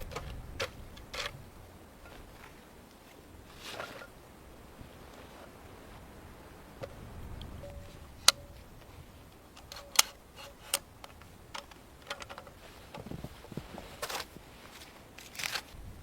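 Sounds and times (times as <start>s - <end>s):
sharp clicks and knocks: 9.3s - 13.1s.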